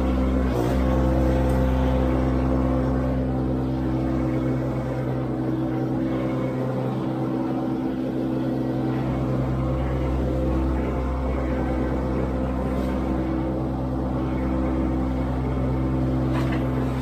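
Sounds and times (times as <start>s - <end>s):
skid steer engine droning: 0.0s - 17.0s.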